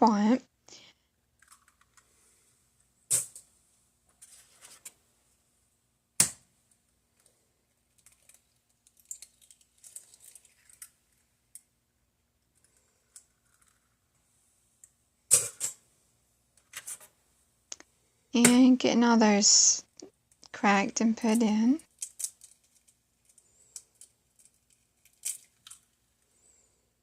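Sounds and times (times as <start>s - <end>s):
eggshell crackling: 7.2s - 14.2s, 19.9s - 26.1s.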